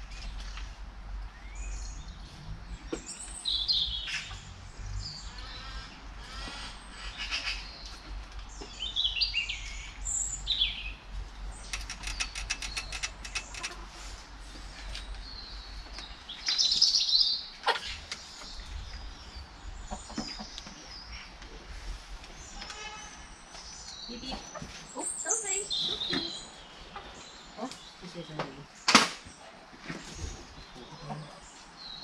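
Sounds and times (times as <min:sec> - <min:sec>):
birds chirping and calling: 0:00.1 - 0:32.0
rapid clicking rattle: 0:11.6 - 0:13.8.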